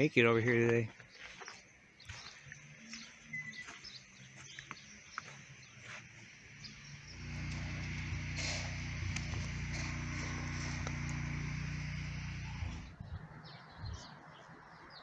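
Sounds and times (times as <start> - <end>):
low motor hum: 6.6 - 13.2.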